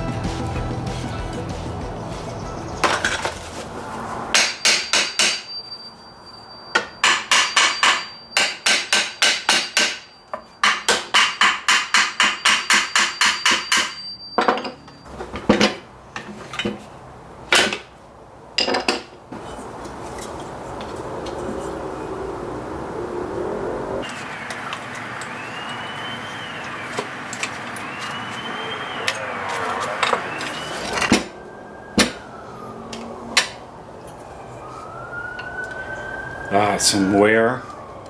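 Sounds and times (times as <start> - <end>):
high ringing tone: 4.4 - 8.5, 12.3 - 15.1, 24.0 - 31.4.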